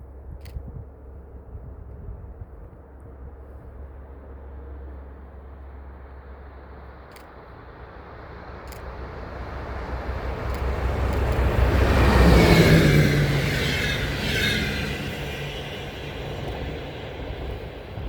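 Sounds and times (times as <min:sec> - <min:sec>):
train passing: 0:03.9 - 0:18.0.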